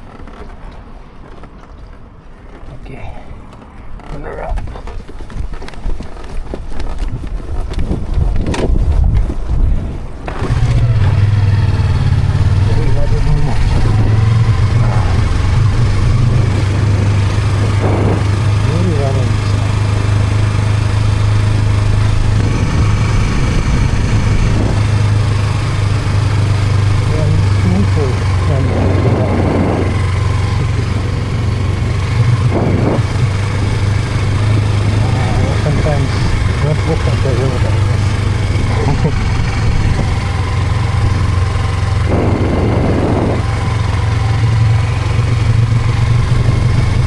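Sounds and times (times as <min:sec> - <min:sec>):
motorcycle engine idling: 0:09.8 - 0:47.0.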